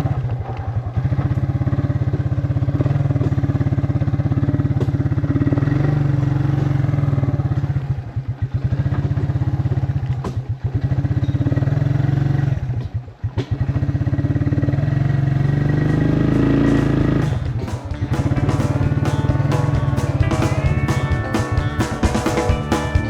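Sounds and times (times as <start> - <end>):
small vehicle engine running: 14.0 - 23.0.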